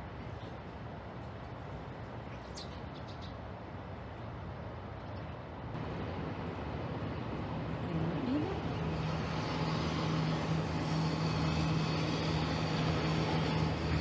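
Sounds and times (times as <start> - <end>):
mechanical rushing noise: 5.8 - 14.0
street sweeper engine hum: 5.8 - 14.0.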